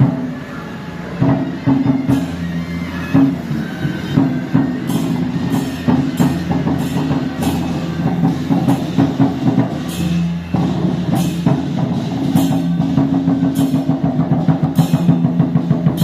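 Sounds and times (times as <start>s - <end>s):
drums and cymbals beating: 0.0s - 16.0s
sustained low ringing tones: 1.2s - 16.0s.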